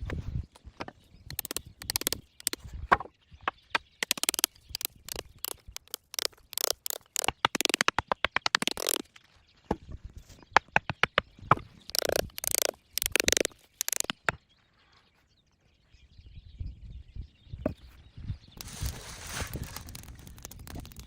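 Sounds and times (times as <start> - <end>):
sticks cracking and clicking: 1.3 - 2.6, 4.0 - 9.0, 11.9 - 14.3, 19.4 - 21.0
branches rustling and scraping: 18.6 - 21.0.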